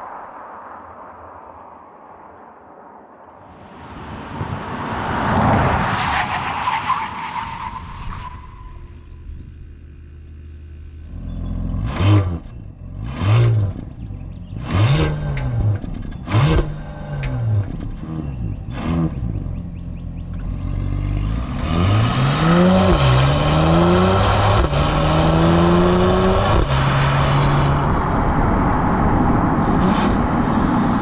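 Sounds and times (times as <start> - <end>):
car passing with tyre noise: 0.0 - 11.0, 18.7 - 31.0
car engine revving: 9.8 - 31.0.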